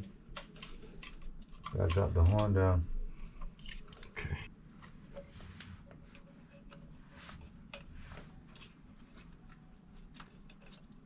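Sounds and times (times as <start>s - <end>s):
tools and parts clicking and tapping: 0.0s - 2.6s, 6.0s - 11.0s.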